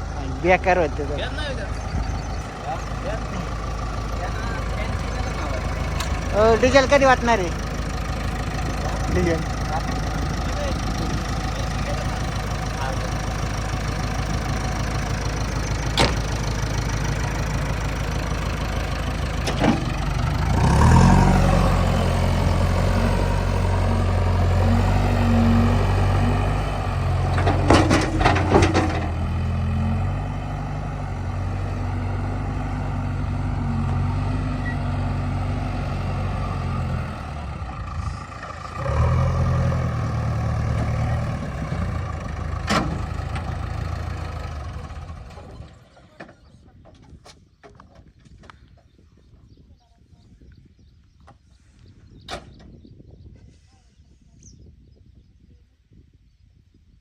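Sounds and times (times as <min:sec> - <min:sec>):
diesel engine running: 0:00.0 - 0:46.9
metallic clanks: 0:27.2 - 0:29.4.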